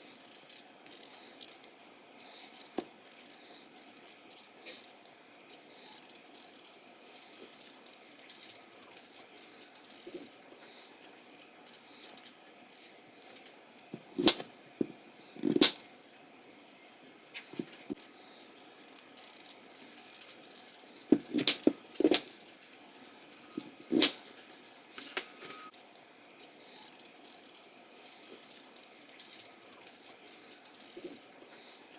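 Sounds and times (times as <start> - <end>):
knife scraping potatoes: 13.9 - 15.8, 21.1 - 22.3, 23.5 - 24.2.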